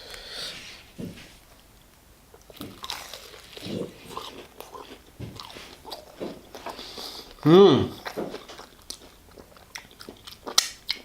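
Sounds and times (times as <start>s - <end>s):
chewing with wet mouth sounds: 2.3s - 11.0s.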